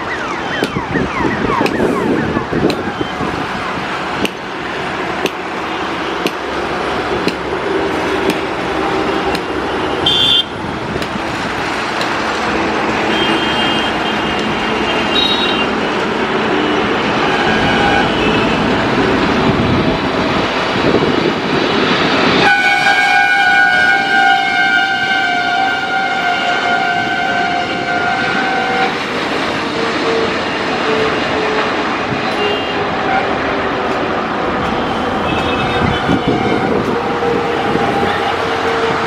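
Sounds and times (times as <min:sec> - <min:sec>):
traffic roar: 0:00.0 - 0:39.0
sustained multi-tone horn: 0:09.0 - 0:10.6, 0:12.9 - 0:15.8, 0:16.6 - 0:18.8, 0:22.4 - 0:29.0, 0:34.7 - 0:39.0.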